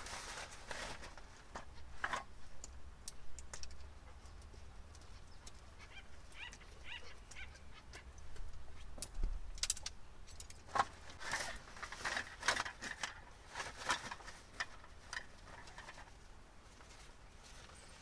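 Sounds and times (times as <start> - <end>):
small objects clinking and rustling: 9.7 - 16.1.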